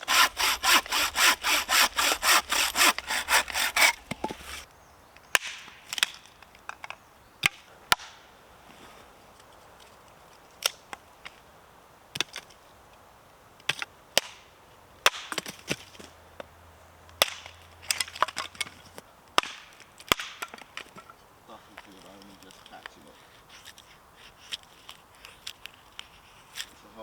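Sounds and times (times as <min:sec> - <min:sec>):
wood being chopped: 0:00.0 - 0:04.6, 0:05.3 - 0:08.2, 0:13.7 - 0:14.4, 0:15.0 - 0:16.0, 0:17.2 - 0:18.8, 0:19.4 - 0:21.1.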